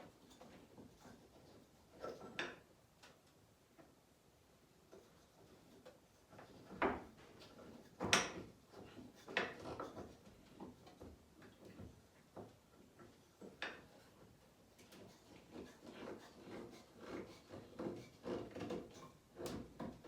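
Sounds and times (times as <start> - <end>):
boards knocking and clunking: 6.3 - 14.0, 15.0 - 20.0.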